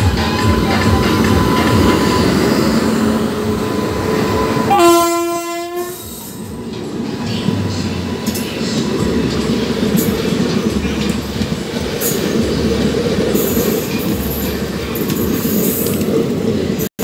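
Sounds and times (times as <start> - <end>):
trains clattering past: 0.0 - 16.9
locomotive horn blast: 4.2 - 6.2.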